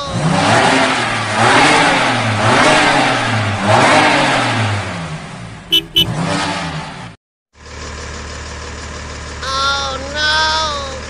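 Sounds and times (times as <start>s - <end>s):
car engine revving: 0.1s - 7.2s
short high beep: 5.7s - 6.2s.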